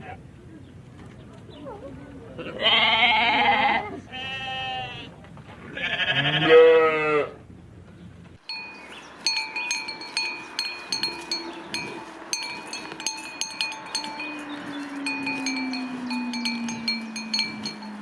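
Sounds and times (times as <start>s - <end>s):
animal bleat: 2.4s - 5.1s, 5.7s - 7.4s
small metal chimes tinkling: 8.4s - 18.0s.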